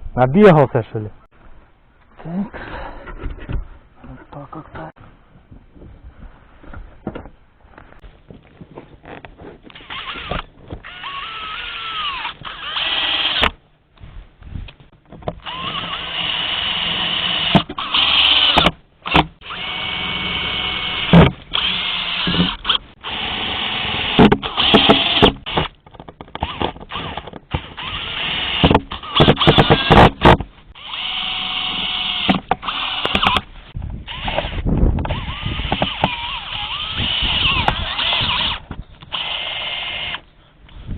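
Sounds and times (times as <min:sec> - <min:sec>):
electric drill running: 0:09.8 - 0:13.5, 0:15.4 - 0:25.7, 0:26.4 - 0:33.4, 0:34.1 - 0:40.2.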